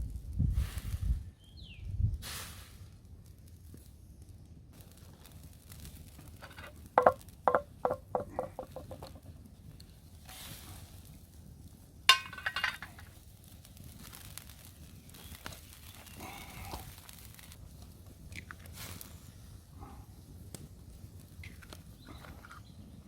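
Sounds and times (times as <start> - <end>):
metal cookware clinking: 12.1 - 13.0.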